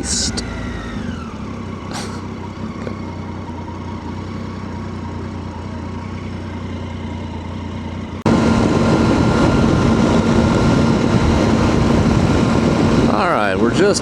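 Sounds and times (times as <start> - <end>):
motorcycle engine running: 0.0 - 14.0
wind and road noise: 0.0 - 14.0.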